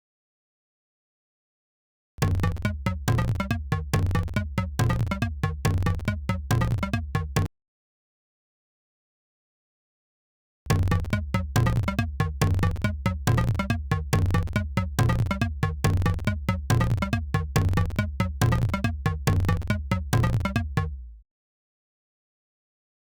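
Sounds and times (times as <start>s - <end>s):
electronic music with synth bass: 2.2s - 7.5s, 10.7s - 21.2s.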